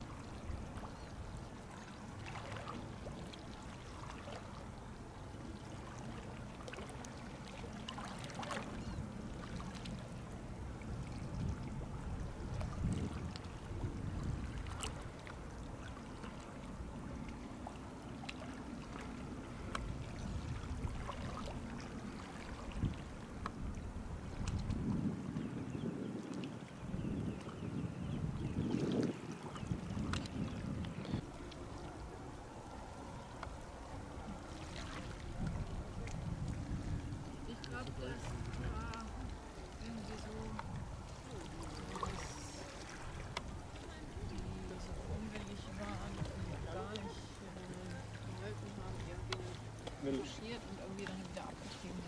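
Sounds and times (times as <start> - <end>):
water wash: 29.5 - 52.0
ship engine rumble: 30.5 - 52.0.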